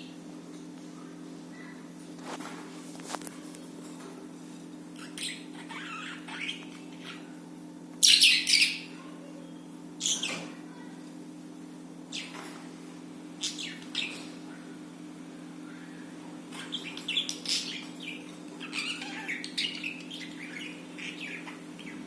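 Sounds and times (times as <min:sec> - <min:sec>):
budgerigars chirping: 0:05.0 - 0:07.3, 0:08.0 - 0:08.9, 0:13.4 - 0:14.3, 0:16.5 - 0:22.0.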